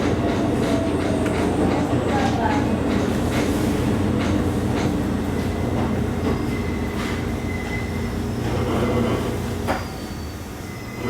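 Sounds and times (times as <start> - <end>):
train interior drone: 0.0 - 11.0
faint wheel squeal: 6.2 - 11.0.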